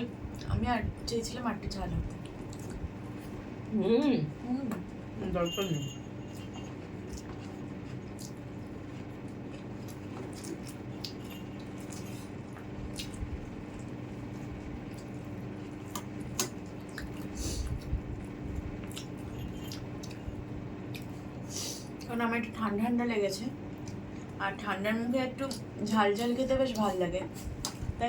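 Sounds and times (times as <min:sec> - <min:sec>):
chewing wet smacks: 0:02.1 - 0:03.0, 0:06.8 - 0:14.0, 0:14.6 - 0:18.0, 0:20.8 - 0:21.2.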